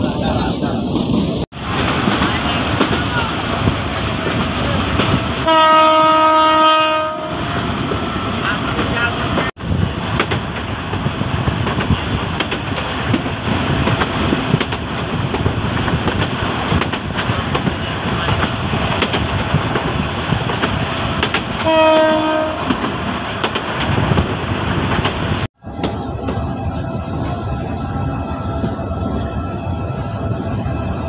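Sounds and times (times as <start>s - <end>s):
train carriage rumbling on track: 0.0s - 31.0s
train horn blast: 5.4s - 7.6s, 21.6s - 22.9s.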